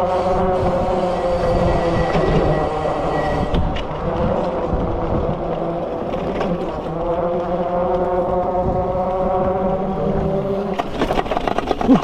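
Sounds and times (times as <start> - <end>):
electric motor whine: 0.0 - 10.9
tyre and wind rumble: 0.0 - 12.0
knocks and rattles from bumps: 10.8 - 12.0.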